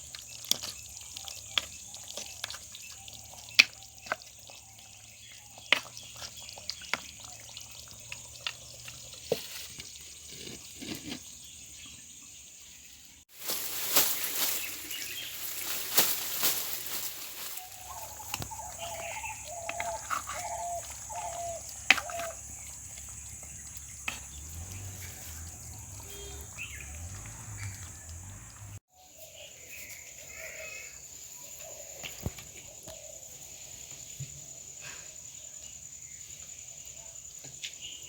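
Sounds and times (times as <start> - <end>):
high insect whine: 13.4 - 28.8.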